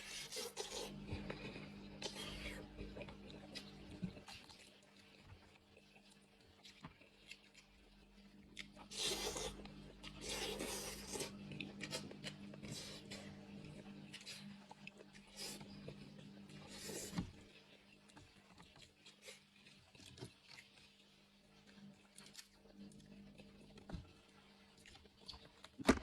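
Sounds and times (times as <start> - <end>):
steady low hum: 0.0 - 4.4, 7.9 - 18.1.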